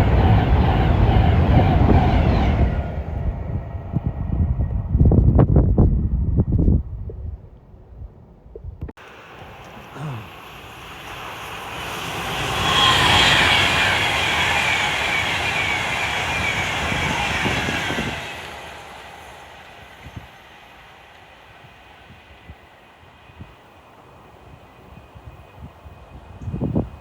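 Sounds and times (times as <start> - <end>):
train passing: 0.0 - 6.1, 9.0 - 27.0
train wheel squeals: 10.4 - 26.9.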